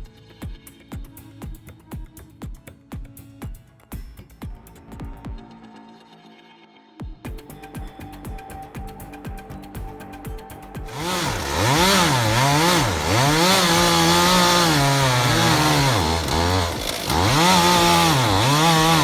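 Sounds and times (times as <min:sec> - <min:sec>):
chainsaw engine revving: 0:10.9 - 0:19.0.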